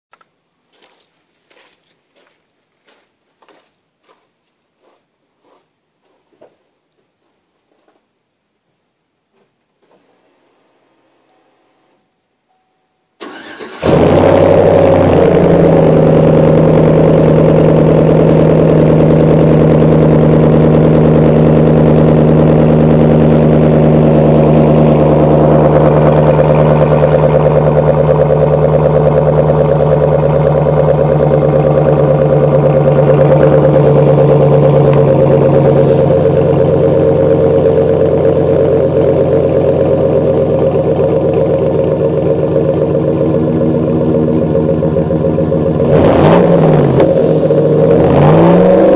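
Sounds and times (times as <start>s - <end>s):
engine starter cranking: 13.2s - 14.4s
engine idling loudly: 13.8s - 48.9s.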